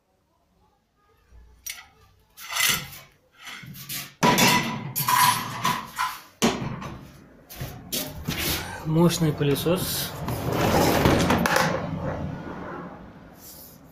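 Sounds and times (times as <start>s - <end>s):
hard objects clattering: 1.7s - 7.0s, 10.2s - 11.9s.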